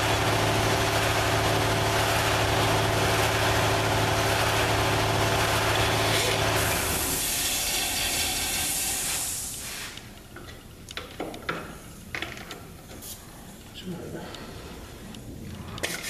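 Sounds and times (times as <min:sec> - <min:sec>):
angle grinder hissing on metal: 0:08.2 - 0:10.0
metal clicks and knocks: 0:10.4 - 0:12.7.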